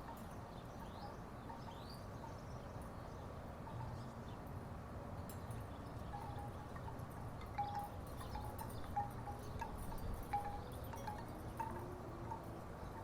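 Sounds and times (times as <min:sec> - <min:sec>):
wooden wind chimes clacking: 0:05.6 - 0:13.0.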